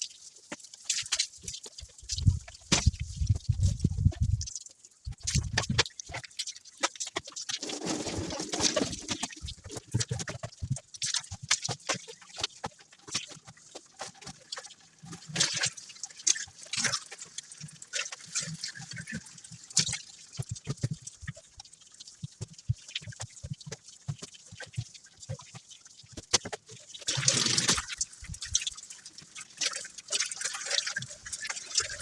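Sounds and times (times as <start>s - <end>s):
wet knocks and squeaks scrubbing: 1.0s - 14.4s.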